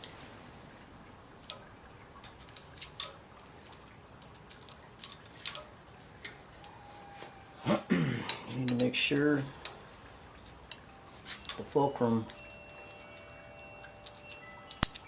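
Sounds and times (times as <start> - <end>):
metallic clicks of engine hand work: 1.4 - 6.8, 8.3 - 15.0.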